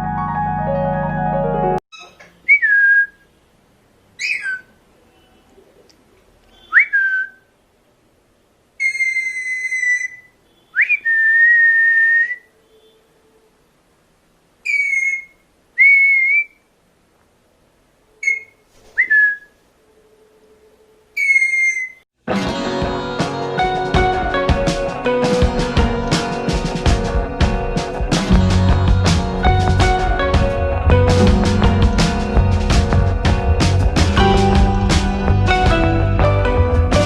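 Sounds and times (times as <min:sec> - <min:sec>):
parrots shrill whistled calls: 0:04.2 - 0:04.7, 0:08.8 - 0:12.4, 0:14.6 - 0:16.6, 0:18.2 - 0:19.5, 0:21.2 - 0:22.0.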